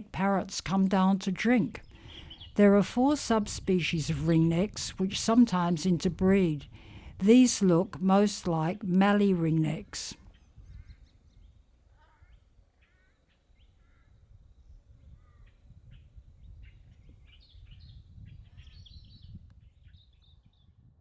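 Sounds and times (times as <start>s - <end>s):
bird calls and chirps: 1.0s - 5.0s, 10.3s - 20.7s.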